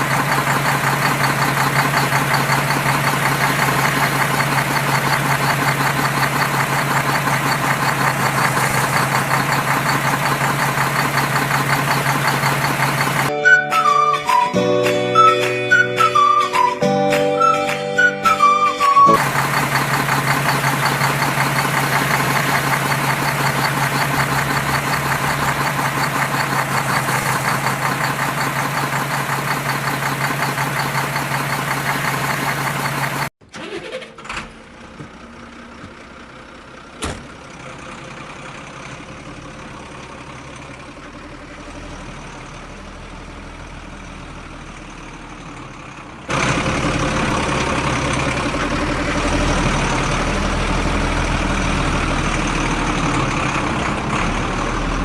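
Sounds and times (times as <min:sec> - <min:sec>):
engine running with fast pulse: 0:00.0 - 0:13.3, 0:17.4 - 0:40.0.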